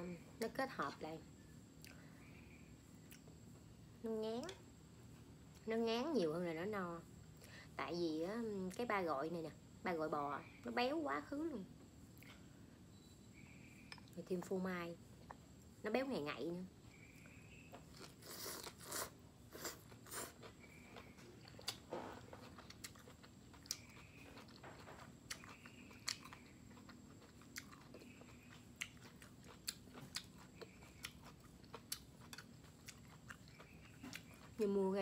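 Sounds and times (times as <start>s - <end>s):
crunchy chewing: 16.9s - 35.0s.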